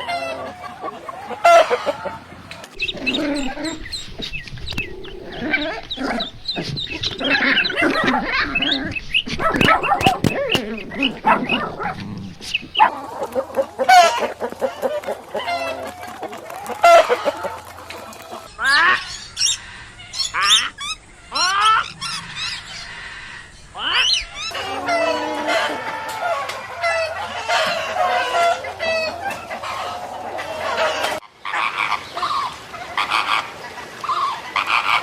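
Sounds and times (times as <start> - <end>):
sharp sweeping calls: 0.0 - 31.2
chickens clucking: 0.0 - 35.0.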